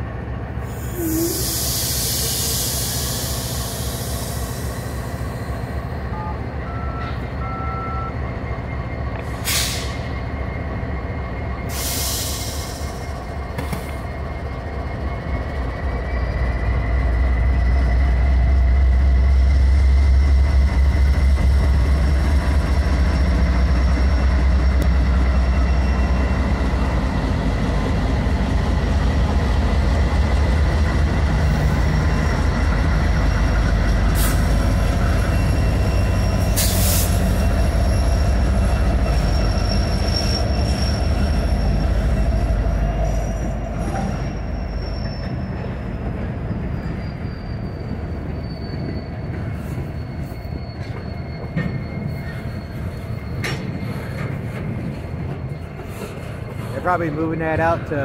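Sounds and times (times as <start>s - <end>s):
high-pitched wheel squeal: 35.0s - 54.4s.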